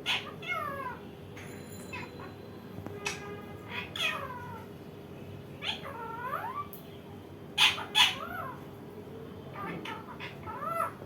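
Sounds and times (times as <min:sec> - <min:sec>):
parakeet harsh squawks: 0:00.0 - 0:01.1, 0:03.0 - 0:04.7, 0:05.6 - 0:06.7, 0:07.6 - 0:08.6, 0:09.5 - 0:11.0
parakeet meow-like calls: 0:00.0 - 0:01.1, 0:03.0 - 0:04.8, 0:05.6 - 0:06.8, 0:07.6 - 0:08.6, 0:09.5 - 0:11.0.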